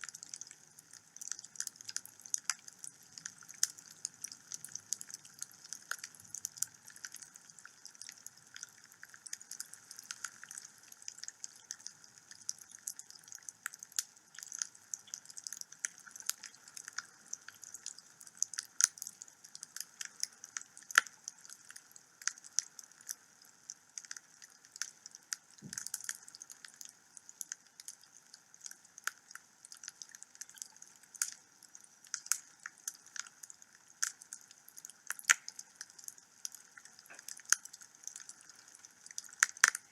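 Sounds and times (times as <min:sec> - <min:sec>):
wood fire crackling and popping: 0:24.8 - 0:27.6, 0:32.1 - 0:39.9.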